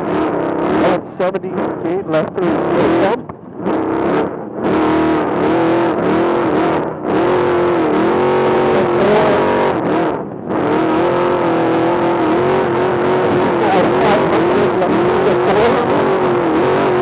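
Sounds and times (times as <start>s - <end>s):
race engine revving hard: 0.0s - 17.0s.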